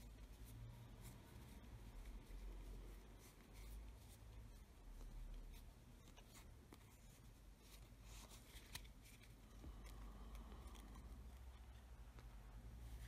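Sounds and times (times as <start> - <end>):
playing cards rustling and clicking: 4.9 - 13.0.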